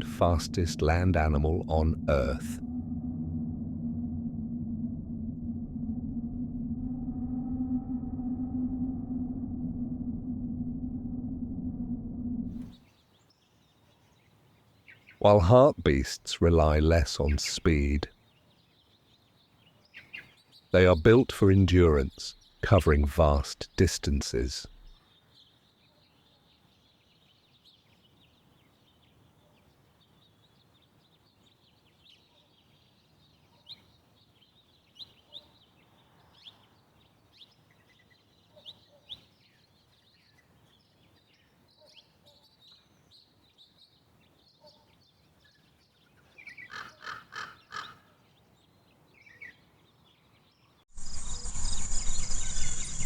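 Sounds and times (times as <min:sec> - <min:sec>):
high insect hiss: 0:51.0 - 0:53.0
loud cricket chirring: 0:51.0 - 0:53.0
short bird chirps: 0:51.0 - 0:53.0.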